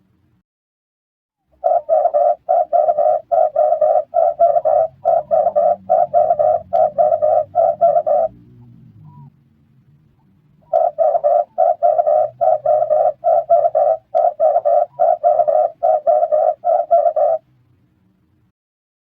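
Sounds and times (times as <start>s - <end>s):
turtle dove cooing: 1.5s - 9.3s, 10.6s - 17.5s.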